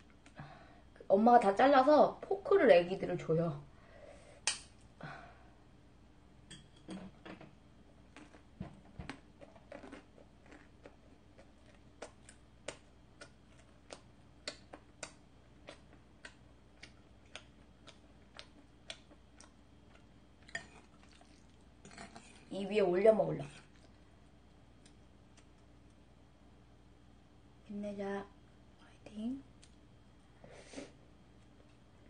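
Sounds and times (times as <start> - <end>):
close chewing with wet clicks: 9.7 - 22.4.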